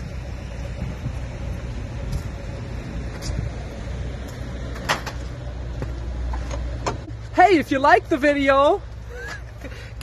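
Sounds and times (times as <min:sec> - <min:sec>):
diesel truck engines idling: 0:00.0 - 0:10.0.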